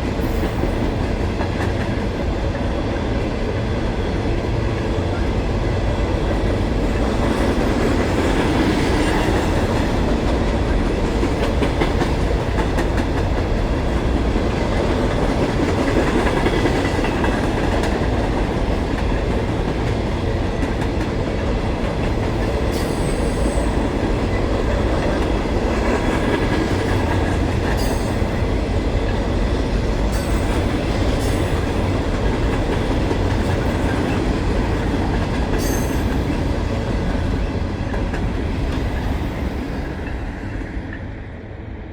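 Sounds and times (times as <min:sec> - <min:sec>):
train wheels clicking over rail joints: 0:06.5 - 0:39.2.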